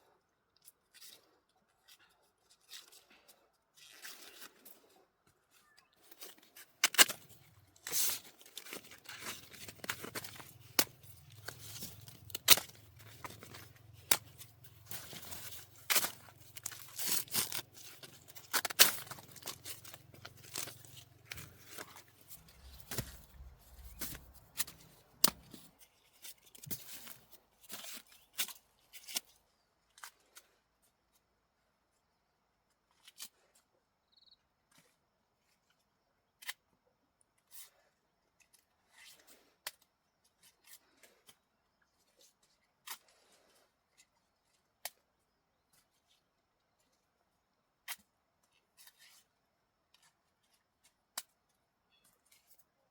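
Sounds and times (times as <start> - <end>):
corn ears snapping off stalks: 6.8 - 25.7
dry leaves rustling: 7.7 - 25.7.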